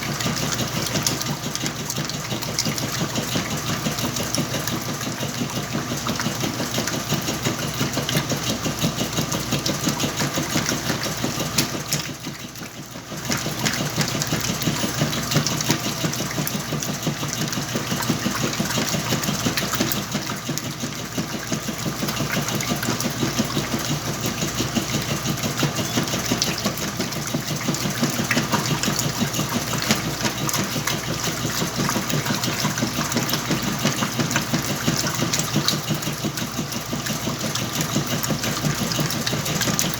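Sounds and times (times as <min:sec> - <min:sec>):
washing machine churning: 0:00.0 - 0:39.9.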